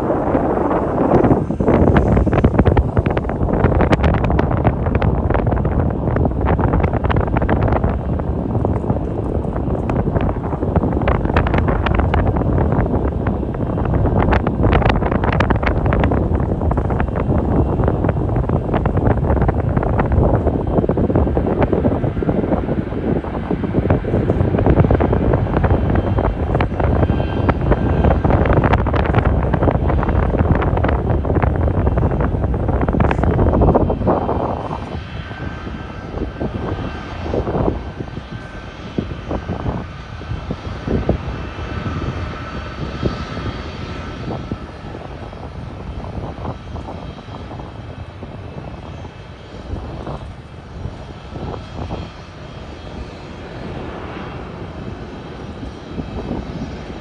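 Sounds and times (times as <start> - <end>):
jet engines roaring: 0.0 - 57.0.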